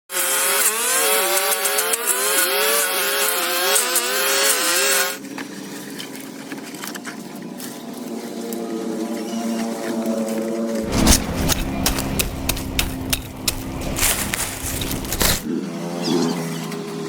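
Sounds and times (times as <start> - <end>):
small engine revving: 0.1 - 5.2.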